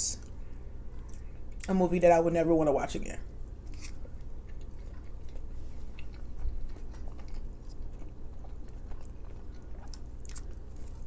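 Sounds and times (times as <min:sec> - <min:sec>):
low steady hum: 0:00.0 - 0:11.0
chewing food: 0:03.7 - 0:11.0.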